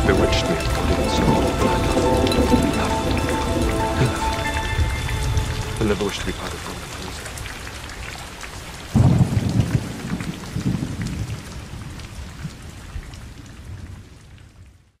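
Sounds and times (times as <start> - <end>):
thunder rolling: 0.0 - 7.6, 8.9 - 12.6
steady rain: 0.0 - 15.0.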